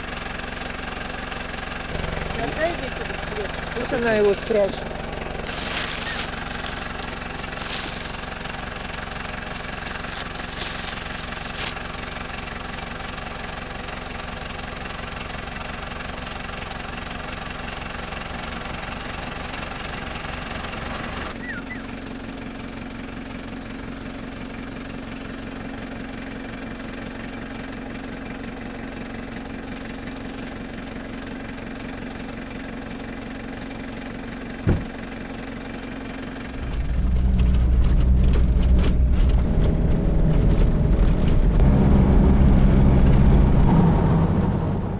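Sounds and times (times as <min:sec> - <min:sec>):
vehicle engine running: 0:00.0 - 0:44.9
short knock: 0:34.7 - 0:35.0.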